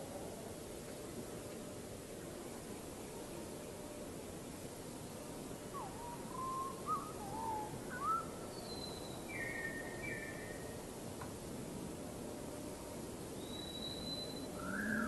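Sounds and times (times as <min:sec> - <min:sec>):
steady background hiss: 0:00.0 - 0:15.0
small birds whistling: 0:05.8 - 0:10.5, 0:13.4 - 0:15.0.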